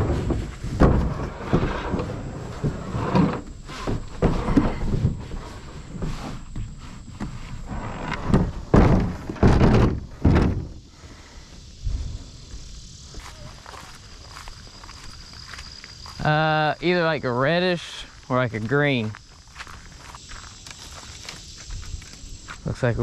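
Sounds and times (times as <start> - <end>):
scraping: 0.0 - 10.8
thumps and knocks: 0.0 - 10.8.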